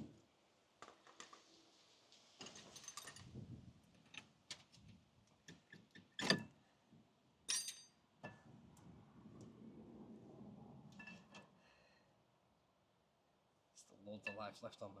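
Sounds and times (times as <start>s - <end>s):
ringing metallic clink: 7.5s - 8.0s.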